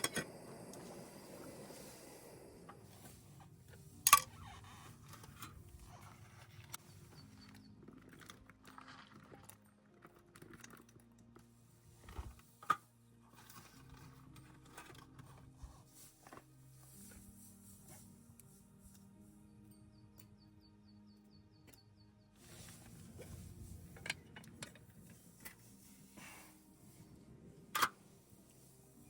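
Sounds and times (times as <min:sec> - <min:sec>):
soft background music: 0:00.0 - 0:29.0
small objects clicking and knocking: 0:06.4 - 0:15.5.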